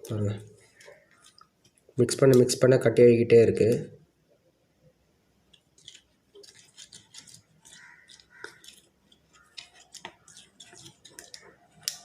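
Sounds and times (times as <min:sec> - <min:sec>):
sticky slime squelches: 0:05.6 - 0:12.0.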